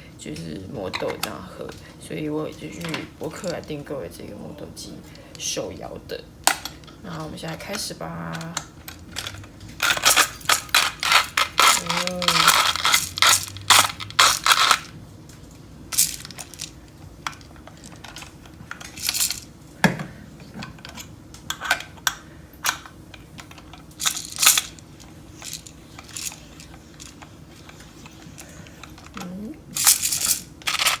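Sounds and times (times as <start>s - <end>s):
hand-crank coffee grinder grinding: 7.6s - 14.9s, 23.4s - 31.0s
coffee beans rattling: 7.6s - 15.0s, 15.9s - 19.6s, 22.7s - 31.0s.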